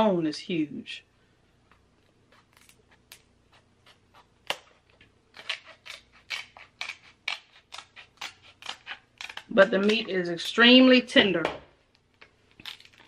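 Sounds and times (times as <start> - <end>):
crab shell cracking: 5.4 - 10.0, 11.9 - 13.0
crisp snaps: 11.9 - 13.0.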